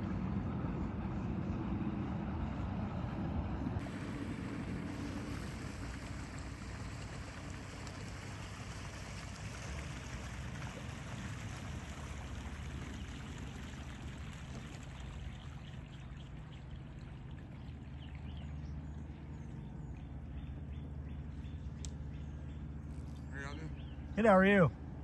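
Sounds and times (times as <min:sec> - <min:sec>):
low engine hum: 0:00.0 - 0:25.0
running water splashing: 0:03.8 - 0:18.4.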